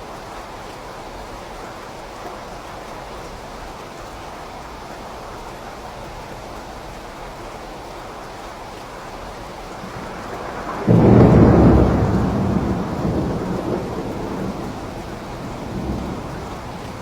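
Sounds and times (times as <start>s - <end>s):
steady rain: 0.0s - 17.0s
thunder clap rumbling: 9.8s - 17.0s.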